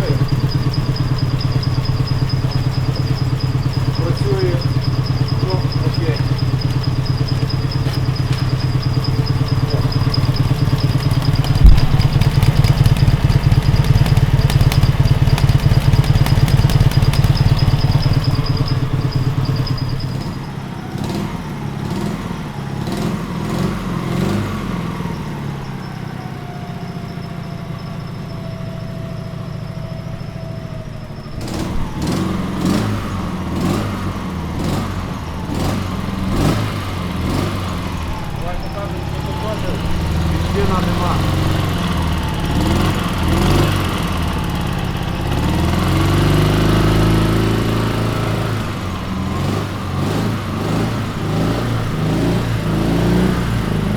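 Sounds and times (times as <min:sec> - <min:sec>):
motorcycle engine idling: 0:00.0 - 0:23.8, 0:25.0 - 0:53.9
engine clattering: 0:00.0 - 0:24.6, 0:31.2 - 0:53.9
sharp knock: 0:11.0 - 0:18.4.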